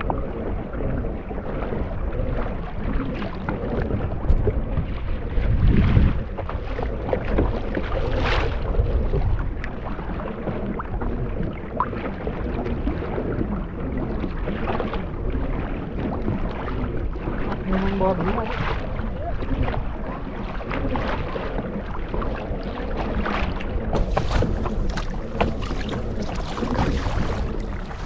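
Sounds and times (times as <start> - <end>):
water and wind noise: 0.0 - 28.0
low rumble: 12.5 - 28.0.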